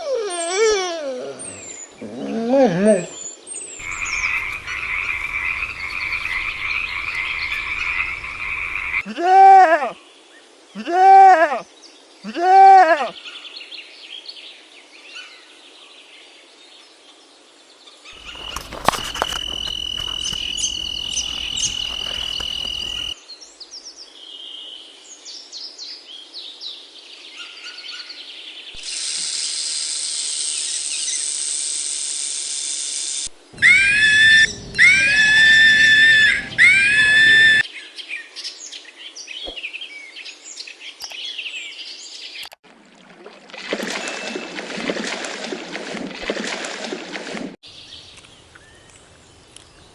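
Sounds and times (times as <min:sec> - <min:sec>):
bird calls and chirps: 0:03.1 - 0:09.0, 0:17.9 - 0:23.2, 0:33.6 - 0:42.5
loud rising and falling bird calls: 0:03.8 - 0:09.0, 0:18.2 - 0:23.2, 0:33.5 - 0:37.7.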